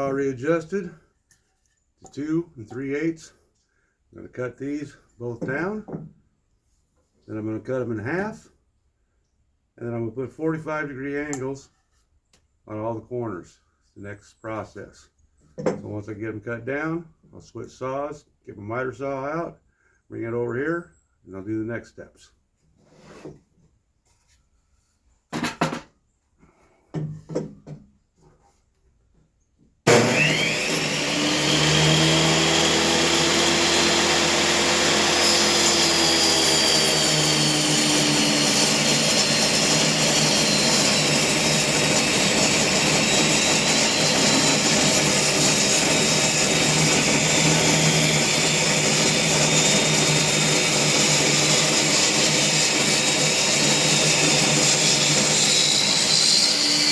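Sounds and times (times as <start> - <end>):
table saw ripping boards: 29.9 - 56.9.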